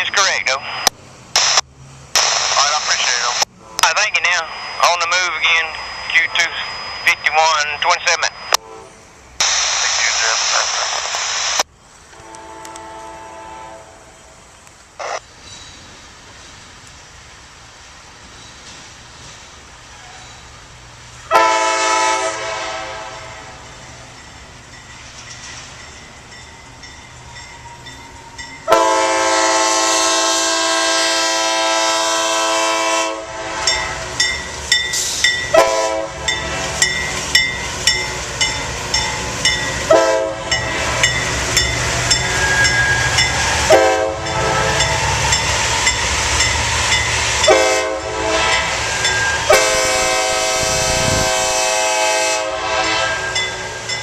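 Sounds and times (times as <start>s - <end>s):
low train rumble: 0.0s - 54.0s
locomotive air horn blasts: 3.6s - 4.0s, 8.6s - 9.0s, 12.2s - 14.1s, 21.3s - 23.7s, 28.7s - 34.2s, 35.5s - 36.8s, 39.9s - 41.0s, 42.4s - 45.9s, 47.2s - 53.6s.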